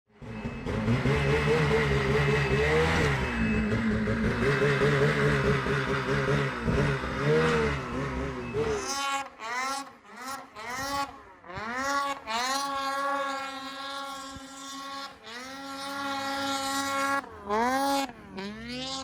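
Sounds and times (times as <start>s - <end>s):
snowmobile engine revving: 0.2s - 19.0s.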